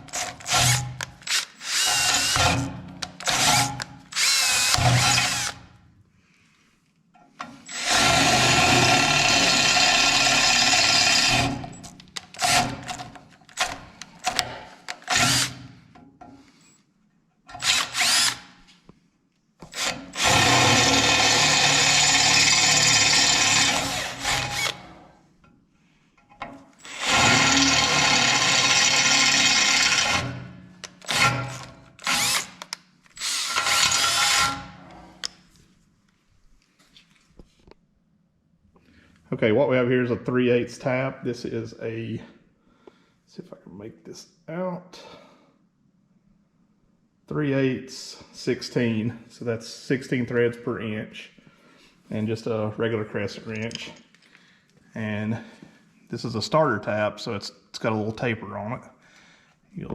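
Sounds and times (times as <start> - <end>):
electric drill boring into steel: 0.0 - 5.6, 7.7 - 11.8, 12.4 - 13.0, 13.6 - 15.6, 17.5 - 18.5, 19.7 - 25.0, 26.8 - 32.6, 33.2 - 34.9.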